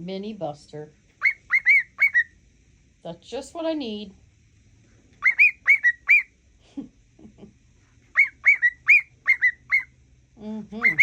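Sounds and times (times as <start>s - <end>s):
cockatiel whistling: 1.2s - 2.4s, 5.2s - 6.3s, 8.1s - 9.9s, 10.8s - 11.0s.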